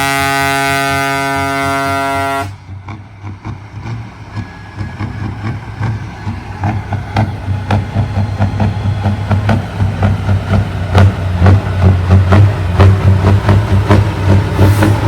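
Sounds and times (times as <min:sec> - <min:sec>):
truck air horn: 0:00.0 - 0:02.6
heavy diesel engine rumbling: 0:00.0 - 0:15.0.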